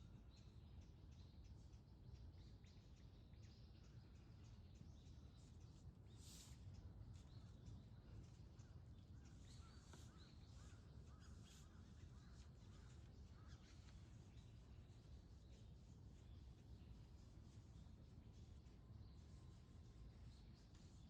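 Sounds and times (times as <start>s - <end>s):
distant bird calls: 7.2s - 21.0s.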